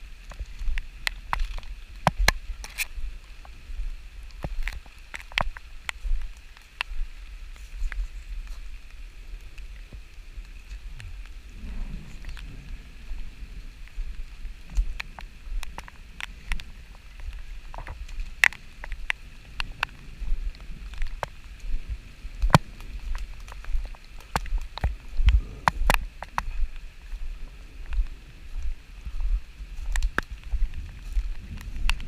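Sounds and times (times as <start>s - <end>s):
rain falling: 0.0s - 32.0s
low rumble: 9.3s - 32.0s.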